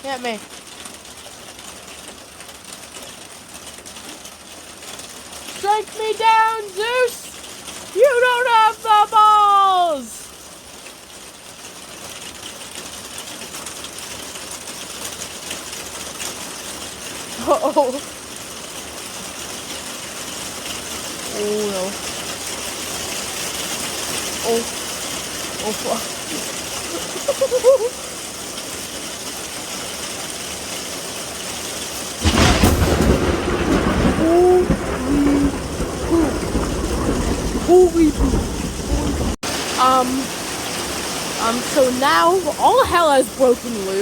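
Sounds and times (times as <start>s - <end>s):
rain pattering: 0.0s - 44.0s
thunderclap and rumble: 32.0s - 43.8s.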